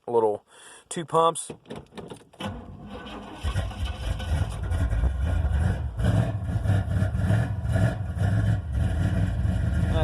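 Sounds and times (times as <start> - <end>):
loud lumpy engine exhaust: 3.5 - 10.0.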